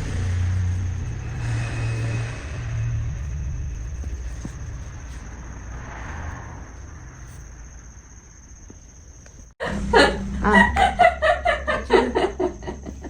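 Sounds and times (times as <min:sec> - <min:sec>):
low background hum: 0:00.0 - 0:13.0
people laughing: 0:09.6 - 0:13.0.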